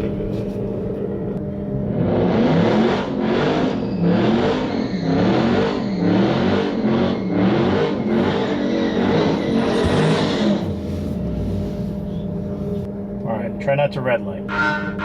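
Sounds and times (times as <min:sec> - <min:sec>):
car engine revving: 0:01.6 - 0:12.9.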